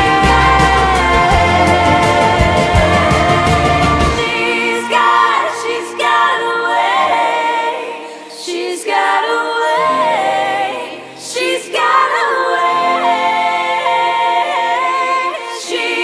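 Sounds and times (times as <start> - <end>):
sustained low notes: 0.0 - 5.5
female vocal harmonies: 0.0 - 16.0.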